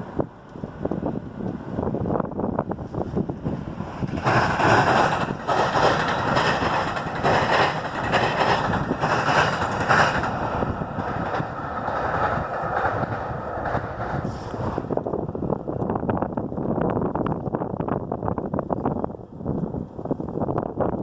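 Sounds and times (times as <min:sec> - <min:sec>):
train passing: 0:00.0 - 0:16.4.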